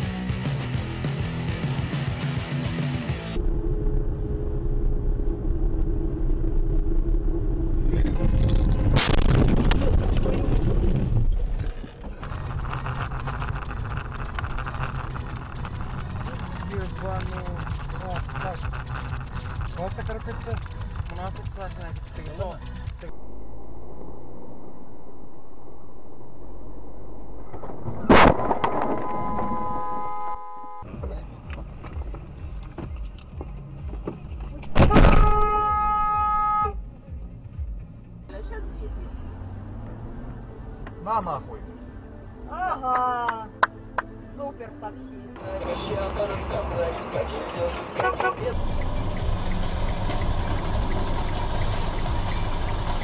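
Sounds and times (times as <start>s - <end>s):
steady road noise: 0.0s - 53.0s
vehicle road rumble: 0.0s - 53.0s
steady pitched tone: 3.1s - 7.9s, 23.0s - 28.0s, 28.7s - 30.9s
car crash: 3.4s - 15.8s, 27.2s - 30.4s, 34.6s - 35.5s.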